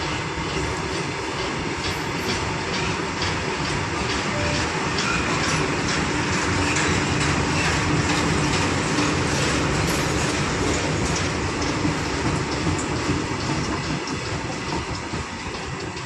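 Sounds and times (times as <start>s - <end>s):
train wagons rumbling: 0.0s - 16.0s
train wheels clicking on rail joints: 0.0s - 16.0s.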